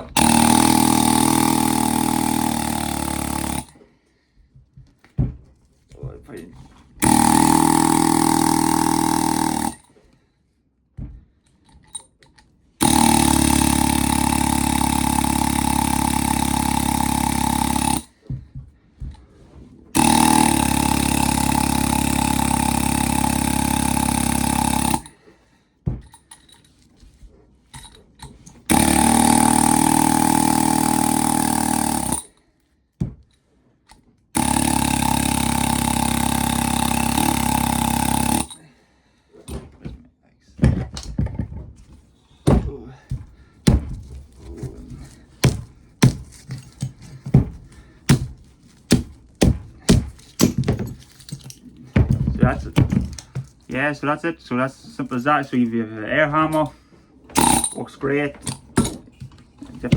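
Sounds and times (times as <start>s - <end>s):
pneumatic air hammer rattling: 0.0s - 3.8s, 7.0s - 9.9s, 12.8s - 18.1s, 19.9s - 25.2s, 27.7s - 32.4s, 33.9s - 38.6s, 43.1s - 53.8s, 56.5s - 59.9s.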